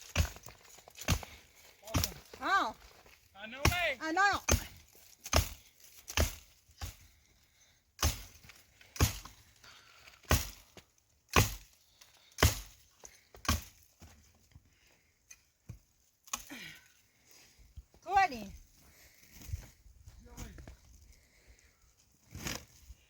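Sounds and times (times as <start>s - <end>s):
axe chopping firewood: 0.0s - 2.6s, 3.6s - 7.2s, 8.0s - 14.1s, 15.6s - 16.6s.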